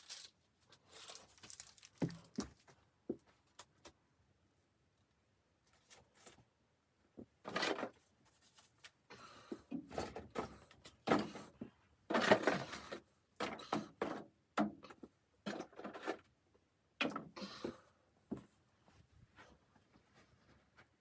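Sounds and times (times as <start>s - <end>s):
scrapes and rustles: 0.0s - 3.6s, 7.5s - 9.1s.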